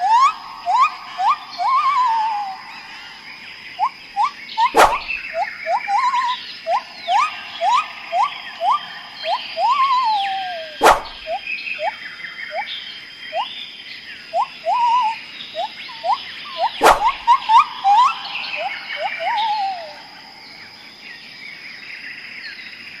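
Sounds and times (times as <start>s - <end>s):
birds whistling and chirping: 0.0s - 21.3s
sharp click: 4.8s - 5.2s, 10.8s - 11.3s, 16.8s - 17.2s.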